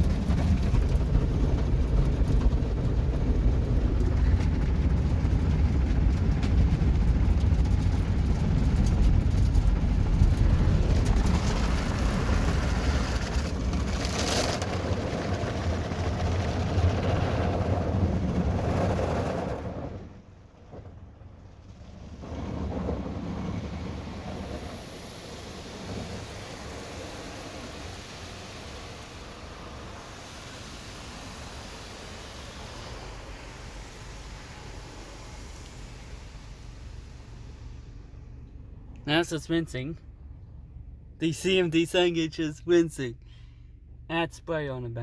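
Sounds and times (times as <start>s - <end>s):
water on car body: 0.0s - 39.4s
car wash rumble: 0.0s - 45.0s
hissy surge: 24.4s - 38.3s.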